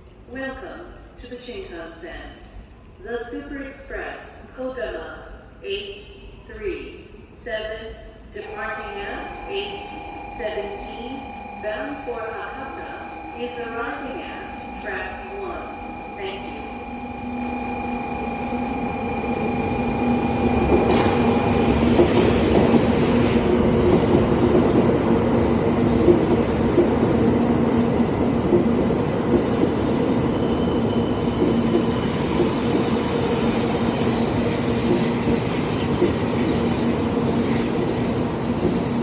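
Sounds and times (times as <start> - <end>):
train rushing and rumbling past: 17.0 - 39.0.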